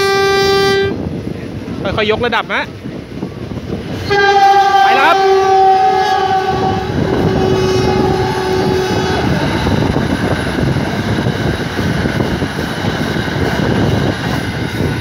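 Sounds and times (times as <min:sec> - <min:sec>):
train whistle: 0:00.0 - 0:01.0, 0:04.0 - 0:09.9
train wheels on rail: 0:00.0 - 0:15.0
rushing air: 0:05.7 - 0:15.0.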